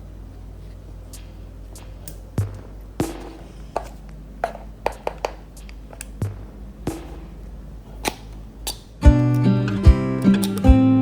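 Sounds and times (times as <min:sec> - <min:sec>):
faint low hum: 0:00.0 - 0:11.0
small objects tapping and clicking: 0:01.2 - 0:07.3
strummed guitar music: 0:09.0 - 0:11.0.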